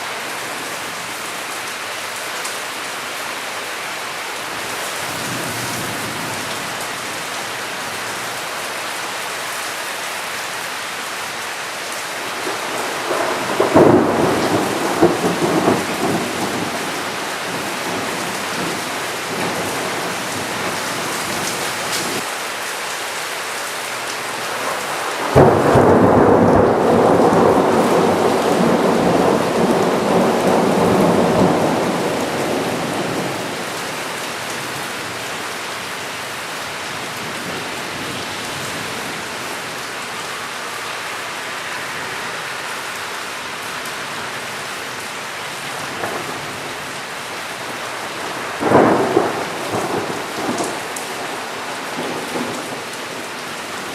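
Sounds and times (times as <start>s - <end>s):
steady rain: 0.0s - 53.9s
thunder clap rumbling: 12.3s - 22.2s, 24.7s - 33.8s, 45.9s - 46.9s, 48.1s - 53.9s.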